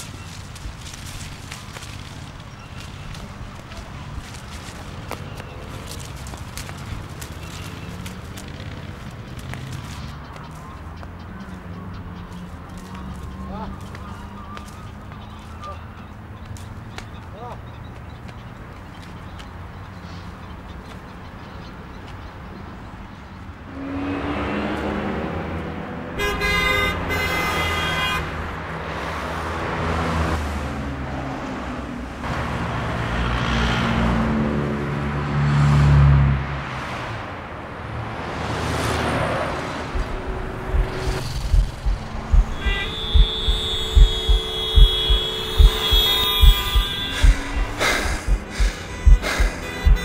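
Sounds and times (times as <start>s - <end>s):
cars passing: 0.0s - 50.0s
car horn: 26.2s - 28.4s, 40.0s - 50.0s
low thumps: 39.9s - 50.0s
steady horn-like tone: 40.0s - 50.0s.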